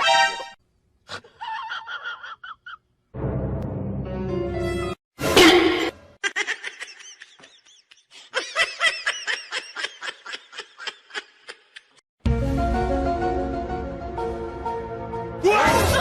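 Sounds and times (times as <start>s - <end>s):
laughter-like calls: 1.1s - 2.9s, 6.2s - 12.0s
music: 3.2s - 5.0s, 12.2s - 16.0s.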